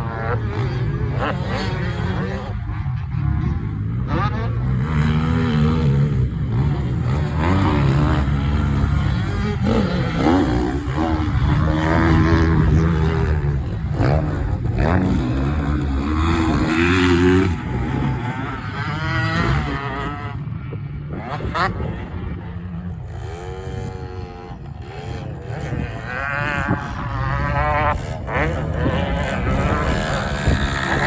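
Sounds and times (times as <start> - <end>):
two-stroke motorbike engine revving: 0.0 - 31.0.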